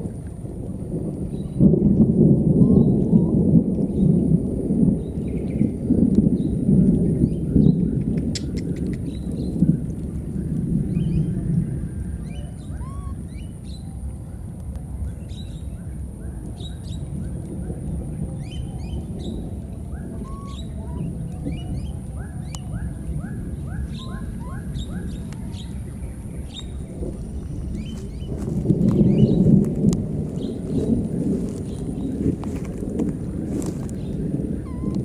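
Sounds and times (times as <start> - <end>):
steady low rumble: 0.0 - 35.0
birds chirping: 2.4 - 4.1, 10.4 - 14.0, 15.2 - 29.6, 33.6 - 35.0.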